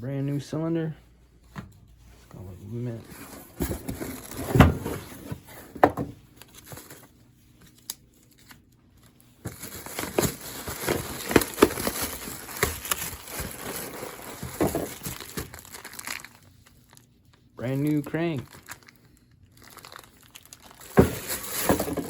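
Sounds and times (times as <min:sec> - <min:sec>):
packaging crinkling: 0:06.4 - 0:22.0.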